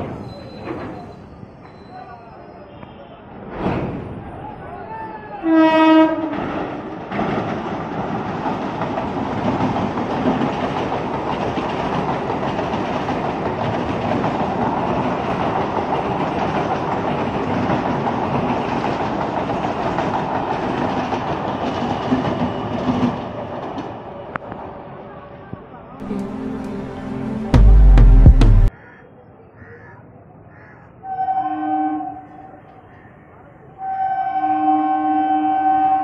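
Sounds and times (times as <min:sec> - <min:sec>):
clickety-clack of rail joints: 0:00.0 - 0:02.0, 0:03.5 - 0:04.3, 0:06.0 - 0:24.6
train wheels rumbling on rail: 0:05.5 - 0:24.8.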